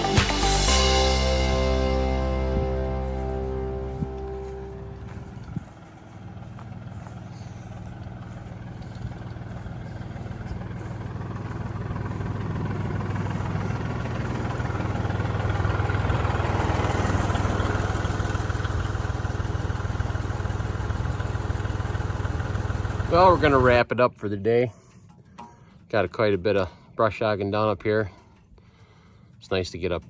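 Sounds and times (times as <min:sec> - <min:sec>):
tractor diesel engine running: 0:00.0 - 0:23.9.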